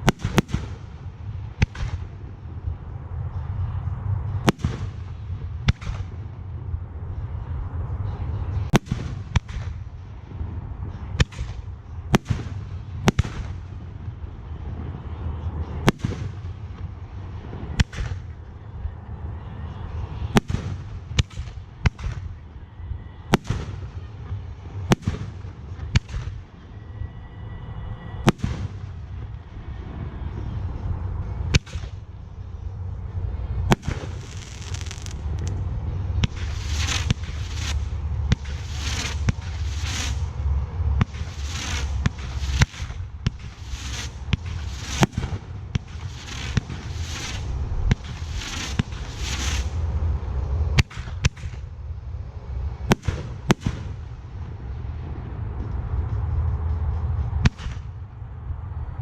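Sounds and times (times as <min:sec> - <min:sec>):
steady low rumble: 0:00.0 - 0:59.0
firework shells bursting: 0:33.7 - 0:35.6, 0:36.2 - 0:40.3.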